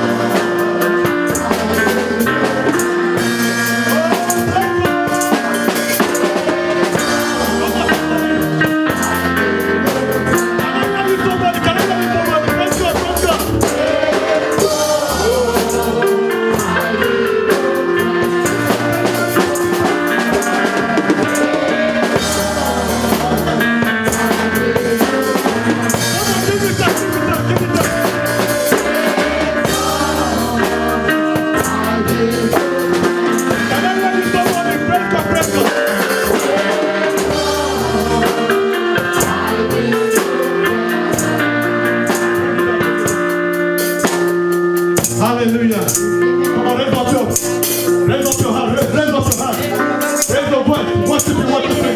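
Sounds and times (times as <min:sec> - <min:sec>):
bass and keyboard: 0:00.0 - 0:51.9
drum kit beat: 0:00.0 - 0:51.9.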